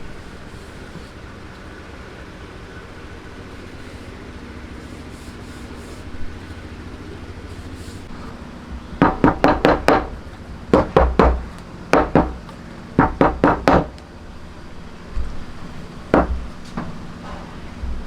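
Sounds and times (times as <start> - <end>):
hand tool knocking on wood: 9.0 - 14.0, 16.1 - 17.0.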